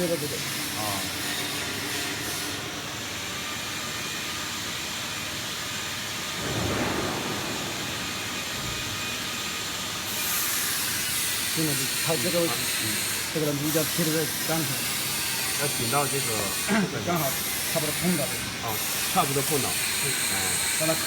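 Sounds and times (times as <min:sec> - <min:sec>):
machine hissing: 0:10.1 - 0:21.0.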